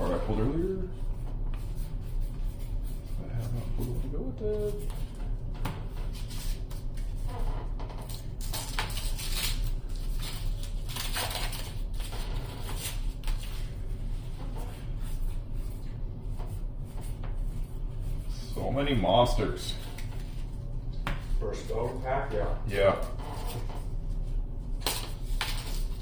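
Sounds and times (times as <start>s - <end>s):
steady low hum: 0.0s - 26.0s
card wrappers crinkling: 8.1s - 12.0s.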